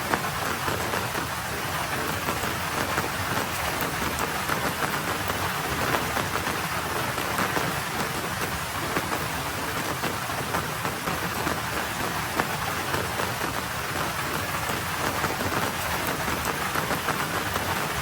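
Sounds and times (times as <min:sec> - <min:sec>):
light rain pattering on road: 0:00.0 - 0:18.0.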